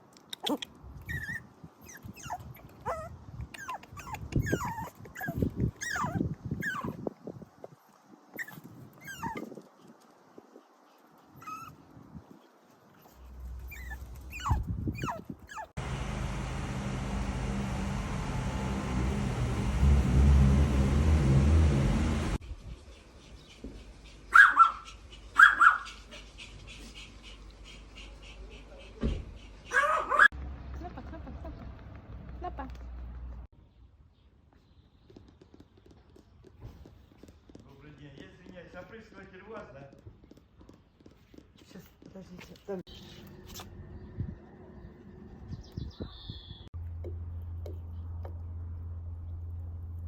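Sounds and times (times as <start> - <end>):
dog whining: 0.4 - 7.0, 13.7 - 15.7
steady rumbling noise: 15.8 - 22.4
dog barking: 24.3 - 26.0, 29.7 - 30.3.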